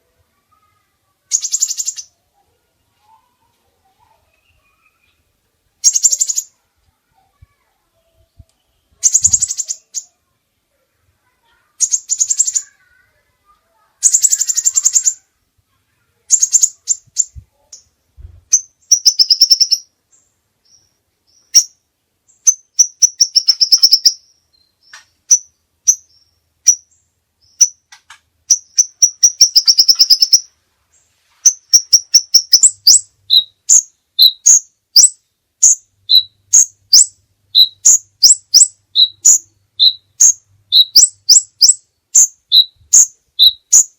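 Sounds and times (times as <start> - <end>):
songbird trilling: 1.3 - 2.2, 5.8 - 6.6, 9.0 - 10.2, 11.8 - 12.9, 14.0 - 15.3, 16.3 - 17.9, 18.5 - 19.9, 20.6 - 27.8, 28.5 - 30.5, 31.4 - 43.9.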